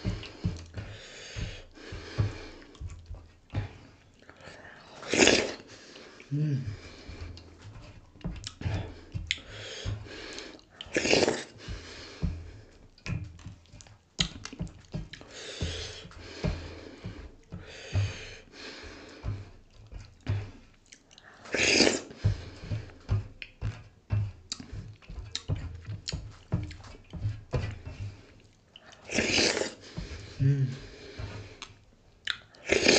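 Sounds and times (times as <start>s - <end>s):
breathy noises: 0.0s - 7.9s, 27.2s - 31.8s
chewing and lip-smacking: 1.7s - 6.3s, 7.2s - 17.6s, 19.0s - 27.5s, 28.2s - 29.9s, 31.2s - 32.9s.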